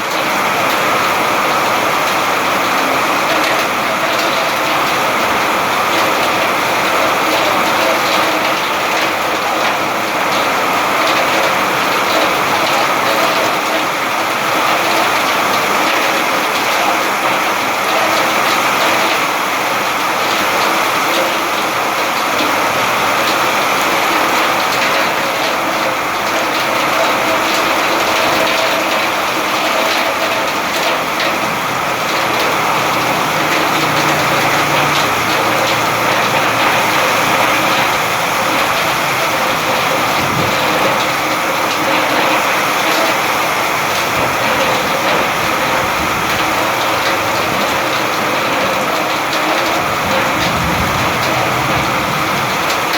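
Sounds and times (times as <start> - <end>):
heavy rain falling: 0.0 - 52.9.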